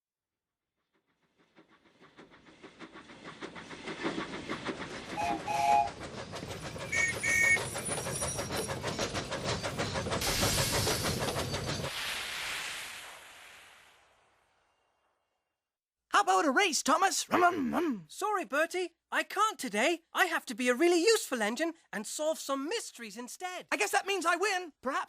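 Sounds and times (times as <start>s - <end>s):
steam locomotive chuffing: 0.8s - 12.6s
steam hissing: 1.4s - 14.2s
two-tone train whistle: 5.2s - 6.0s, 6.9s - 7.6s.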